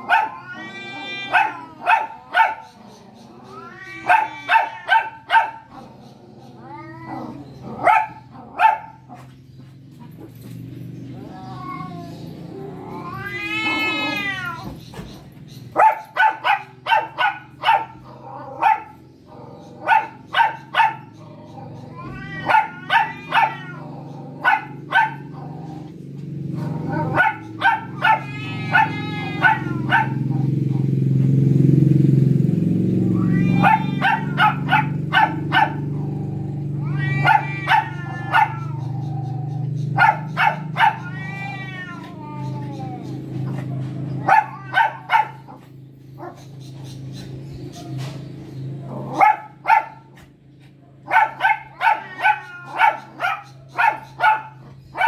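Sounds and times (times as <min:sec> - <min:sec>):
wavering animal cries: 0:00.0 - 0:09.1, 0:10.9 - 0:25.9, 0:26.5 - 0:31.0, 0:32.9 - 0:47.9, 0:51.1 - 0:55.0
animal yelps: 0:00.0 - 0:09.2, 0:11.1 - 0:25.9, 0:26.5 - 0:30.6, 0:33.0 - 0:48.2, 0:51.0 - 0:55.0.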